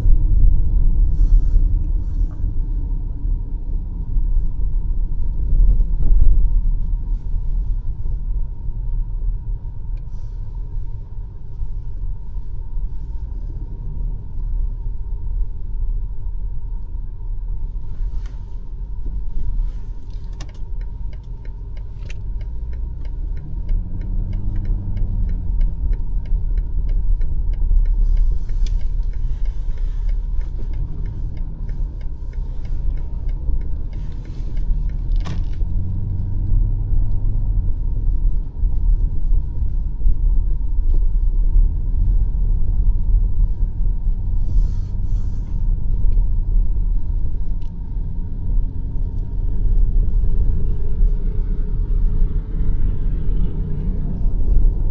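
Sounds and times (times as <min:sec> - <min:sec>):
car engine and tyres rumbling: 0:00.0 - 0:54.9
light regular ticking: 0:20.0 - 0:35.9.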